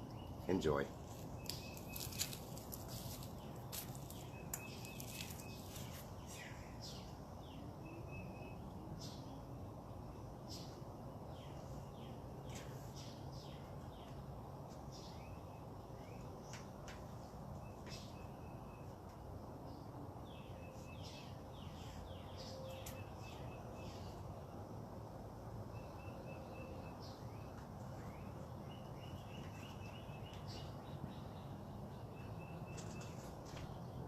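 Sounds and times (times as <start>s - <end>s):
birds chirping and trilling: 0.0s - 9.5s, 25.7s - 34.0s.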